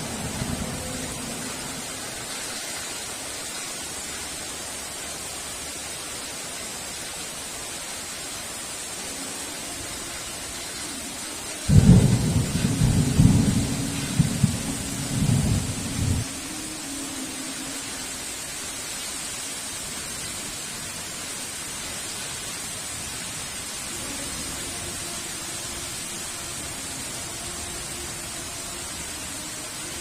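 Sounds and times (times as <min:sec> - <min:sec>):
thunder rumbling: 0:00.0 - 0:02.2, 0:11.6 - 0:16.4
heavy rain: 0:00.0 - 0:30.0
thunder crack: 0:11.7 - 0:16.2.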